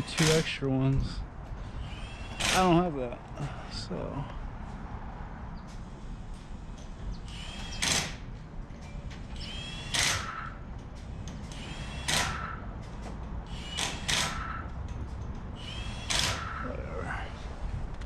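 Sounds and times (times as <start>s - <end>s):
wrench clicking on bolts: 9.4s - 16.6s.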